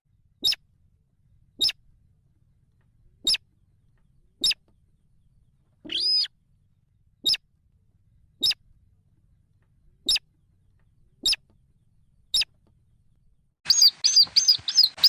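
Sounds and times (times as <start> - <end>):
rail chicks peeping: 3.2 - 3.4, 5.9 - 6.3, 13.7 - 15.0.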